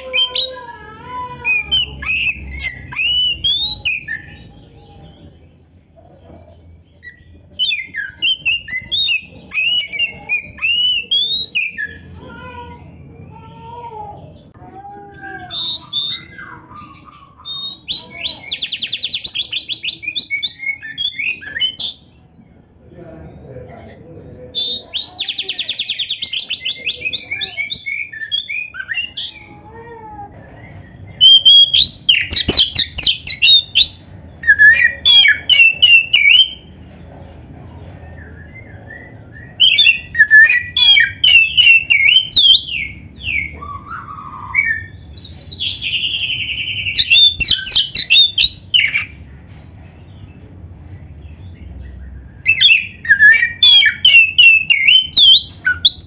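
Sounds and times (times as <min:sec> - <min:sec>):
bird singing whistles and trills: 0:01.6 - 0:05.0, 0:07.0 - 0:12.1, 0:15.2 - 0:22.0, 0:30.6 - 0:36.7, 0:38.0 - 0:49.1, 0:51.7 - 0:56.0.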